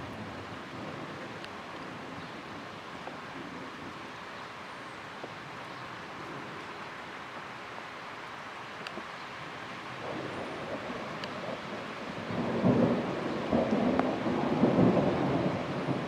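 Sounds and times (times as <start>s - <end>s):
distant thunder rumble: 10.0s - 16.0s.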